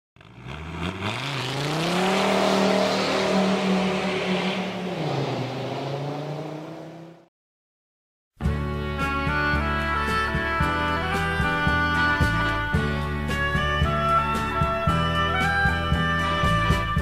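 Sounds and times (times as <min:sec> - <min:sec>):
car engine revving: 0:00.2 - 0:07.3.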